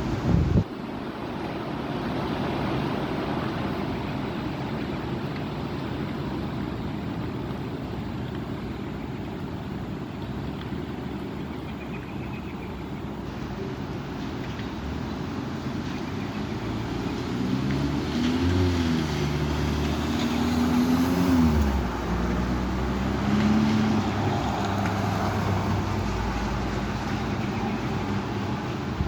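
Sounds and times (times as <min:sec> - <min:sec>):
vehicle engine driving past: 0:15.2 - 0:28.2.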